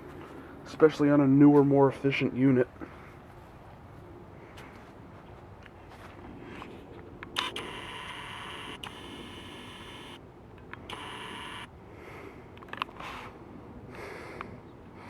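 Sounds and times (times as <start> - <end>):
faint low hum: 0.0 - 15.0
motor switch click: 7.2 - 11.7
small motor whining: 7.2 - 11.7.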